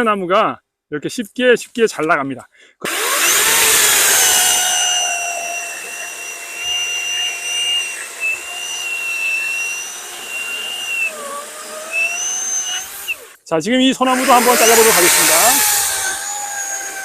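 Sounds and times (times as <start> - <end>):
electric chainsaw whining: 2.8 - 13.4, 14.0 - 17.0.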